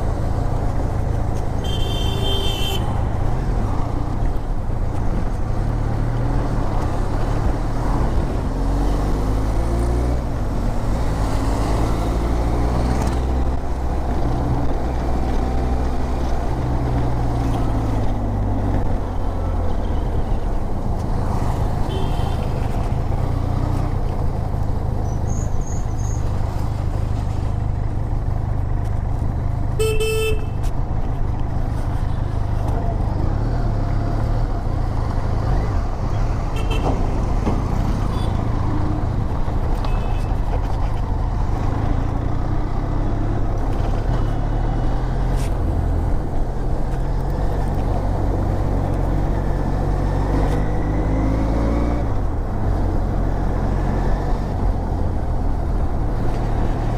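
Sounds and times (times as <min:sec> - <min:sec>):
road and wind noise: 0:00.0 - 0:56.9
horn honk: 0:01.6 - 0:02.9, 0:29.8 - 0:30.6, 0:36.5 - 0:37.0.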